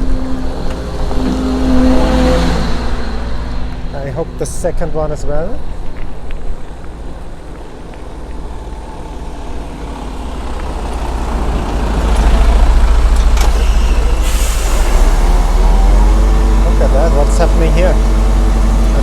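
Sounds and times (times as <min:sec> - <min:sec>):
truck engine rumble: 0:00.0 - 0:19.0
brief hiss: 0:13.4 - 0:15.8.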